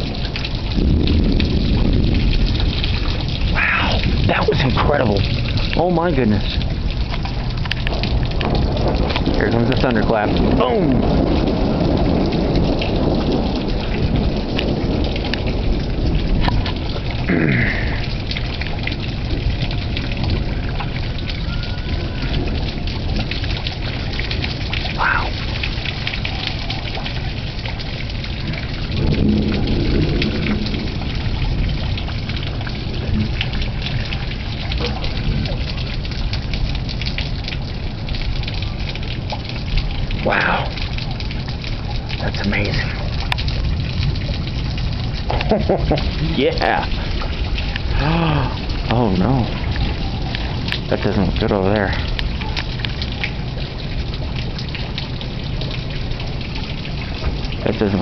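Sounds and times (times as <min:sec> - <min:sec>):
heavy rain: 0:00.0 - 0:58.0
thunder rumbling: 0:00.0 - 0:58.0.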